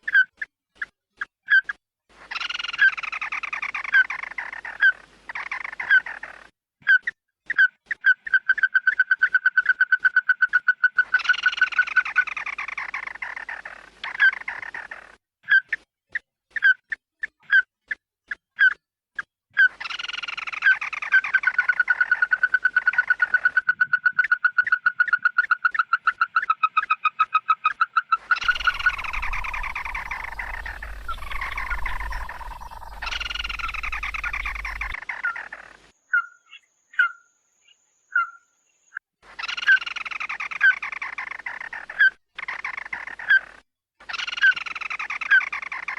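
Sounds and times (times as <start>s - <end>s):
bird flock calls and trills: 28.3s - 35.6s
faint low hum: 28.4s - 35.0s.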